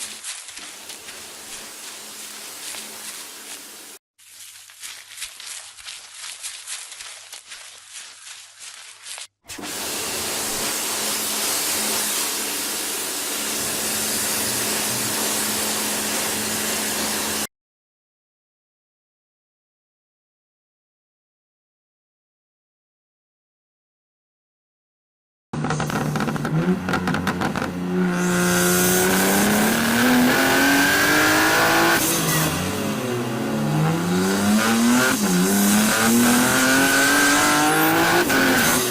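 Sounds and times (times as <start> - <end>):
pressure washer spraying water: 0.0 - 4.0, 9.5 - 17.4
car engine accelerating: 25.6 - 38.9.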